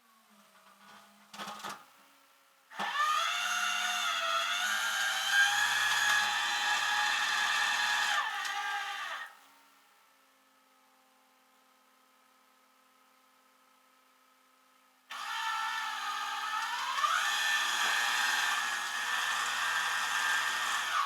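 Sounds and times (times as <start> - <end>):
small electric motor whining: 2.7 - 9.4, 15.1 - 21.0.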